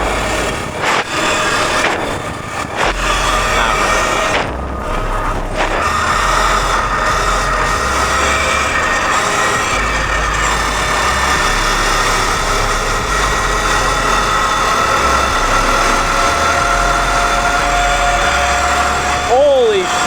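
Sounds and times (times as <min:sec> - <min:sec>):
dirt bike motor whine: 0:00.0 - 0:20.0
wind rushing over microphone: 0:00.0 - 0:20.0.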